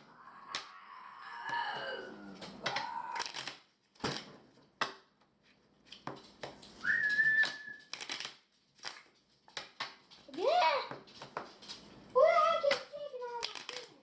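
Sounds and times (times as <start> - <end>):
whistled note: 6.8 - 7.9.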